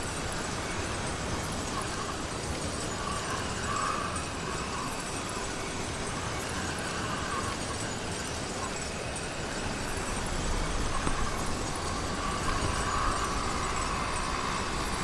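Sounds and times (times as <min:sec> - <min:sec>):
road noise: 0:10.1 - 0:15.0
small engine running: 0:10.1 - 0:15.0.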